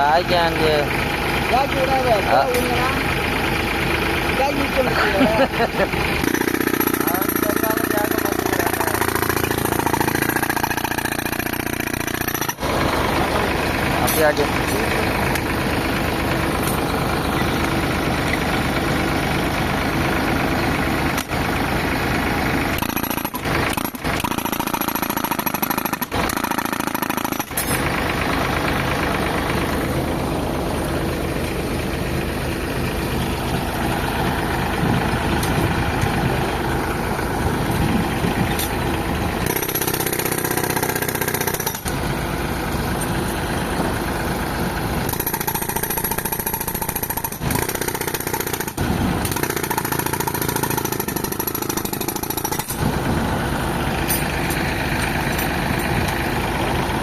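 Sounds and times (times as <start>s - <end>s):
tractor engine running: 0.0s - 57.0s
pneumatic rock breaker hammering: 5.1s - 19.5s, 20.6s - 30.0s, 34.3s - 36.4s, 37.6s - 42.1s, 45.0s - 57.0s.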